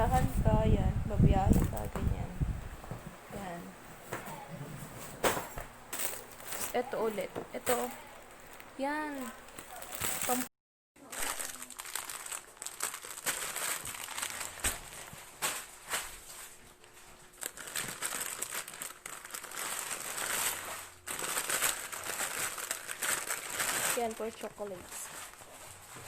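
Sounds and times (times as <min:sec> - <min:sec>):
plastic packaging crinkling: 0:06.0 - 0:26.0.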